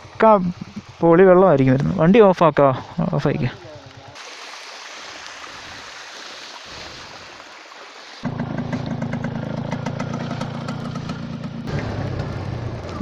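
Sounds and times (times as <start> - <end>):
rushing water-like noise: 0.0 - 8.7
motorcycle engine idling: 8.2 - 13.0.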